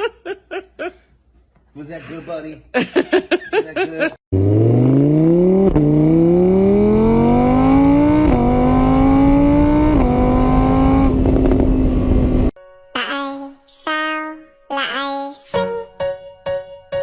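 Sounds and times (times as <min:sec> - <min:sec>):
vehicle engine accelerating: 0:04.3 - 0:12.5.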